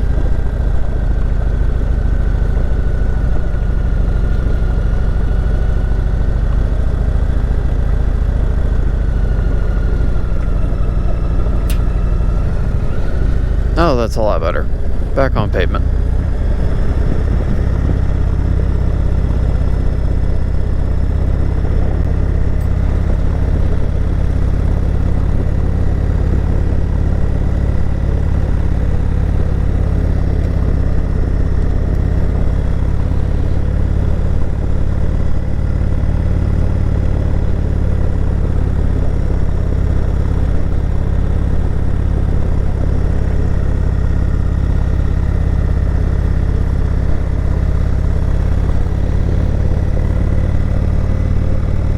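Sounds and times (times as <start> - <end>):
motorcycle engine droning: 0.0 - 51.9.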